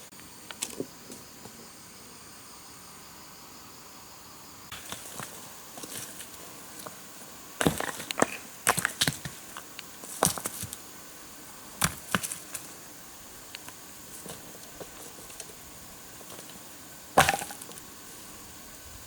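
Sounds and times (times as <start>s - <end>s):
hand tool splitting wood: 7.6s - 10.8s, 11.8s - 12.7s, 16.2s - 17.9s.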